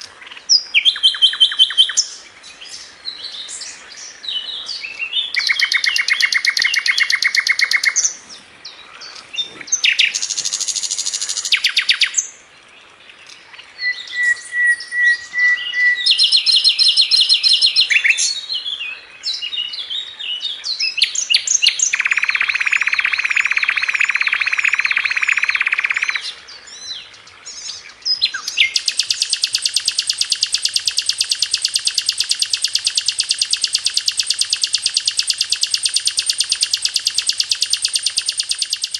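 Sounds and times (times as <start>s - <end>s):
bird singing fast trills: 0.0s - 8.2s, 9.1s - 12.4s, 13.8s - 38.9s
bird whistle: 0.8s - 2.0s, 5.3s - 8.0s, 13.8s - 18.3s, 21.3s - 26.3s, 28.2s - 38.9s.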